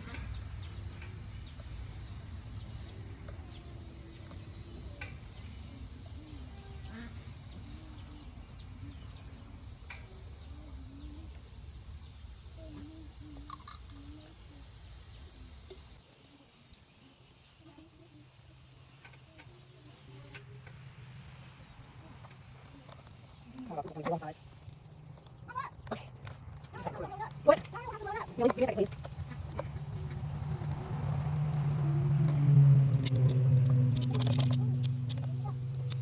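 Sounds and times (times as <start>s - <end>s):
chickens clucking: 0.0s - 11.4s, 22.1s - 31.5s
low steady rumble: 0.0s - 16.0s, 18.1s - 36.0s.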